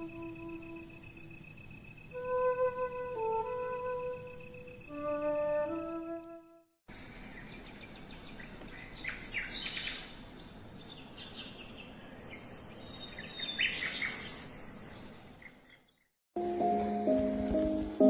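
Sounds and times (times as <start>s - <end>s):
steady background hiss: 0.0s - 6.0s, 6.9s - 15.5s
birds chirping: 5.9s - 16.1s.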